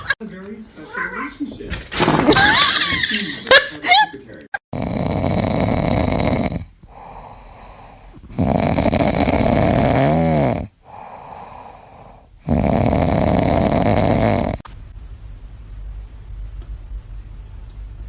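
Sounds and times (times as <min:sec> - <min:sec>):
loud snoring: 0:04.7 - 0:14.6
quiet breaths: 0:05.0 - 0:09.7, 0:10.4 - 0:13.9.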